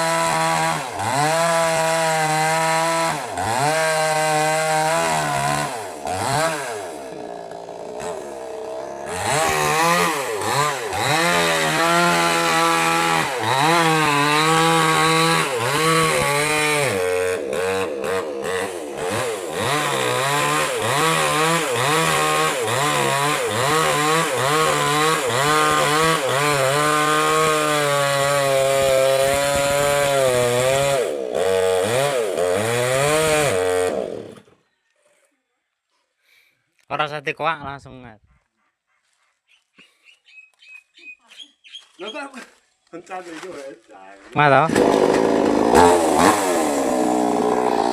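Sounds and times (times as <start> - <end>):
chainsaw cutting wood: 0.0 - 34.6, 44.4 - 47.9.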